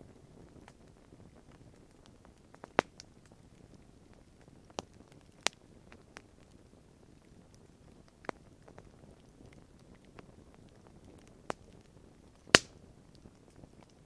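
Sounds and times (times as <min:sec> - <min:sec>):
campfire crackling: 0:00.0 - 0:14.0
loud sharp crack: 0:12.6 - 0:12.8.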